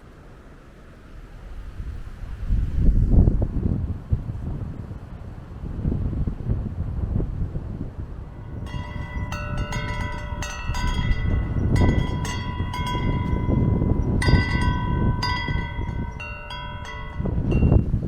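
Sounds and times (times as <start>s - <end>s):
gusting wind on microphone: 1.1s - 18.0s
wind chimes ringing: 8.3s - 18.0s.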